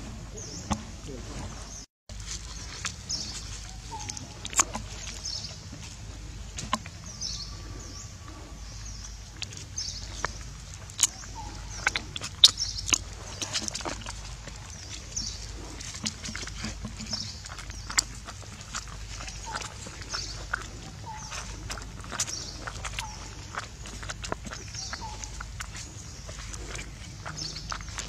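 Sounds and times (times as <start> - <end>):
small birds chirping: 0.3 - 28.0
monkey sucking on straw: 9.1 - 28.0.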